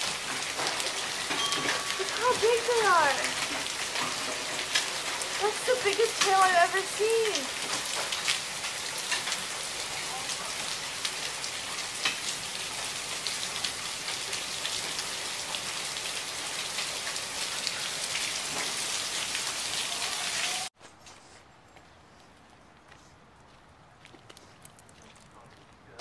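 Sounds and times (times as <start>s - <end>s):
hailstones ticking: 0.0s - 19.9s
heavy rain: 0.0s - 20.7s.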